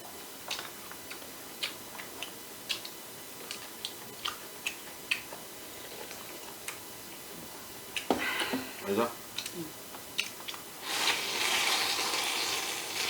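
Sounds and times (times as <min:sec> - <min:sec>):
clicks and taps of eating: 0:00.4 - 0:05.4, 0:09.3 - 0:10.6.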